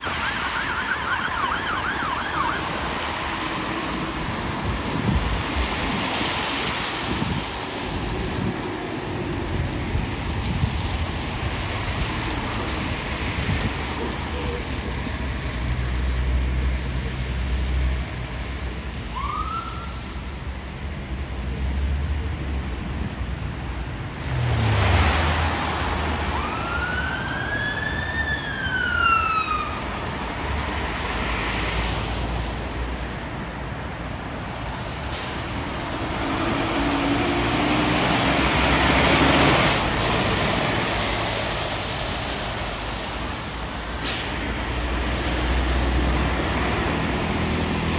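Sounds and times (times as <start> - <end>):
fire engine siren wailing: 0.0 - 16.0, 19.0 - 20.1, 24.5 - 31.7
heavy vehicles passing: 0.0 - 19.1, 20.0 - 47.9.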